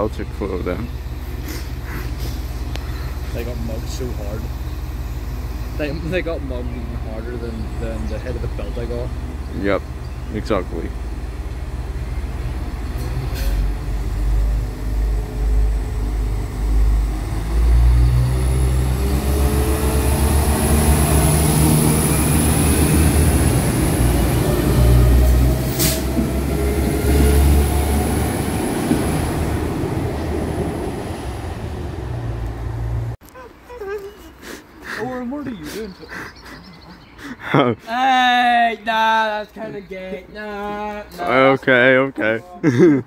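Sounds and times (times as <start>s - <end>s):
train rumbling past: 0.0s - 33.2s.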